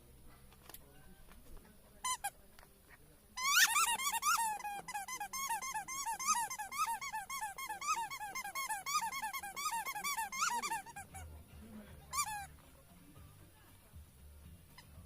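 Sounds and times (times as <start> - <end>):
squeaky toy squeaking: 2.0 - 2.4, 3.4 - 11.3, 12.1 - 12.6, 14.7 - 15.0.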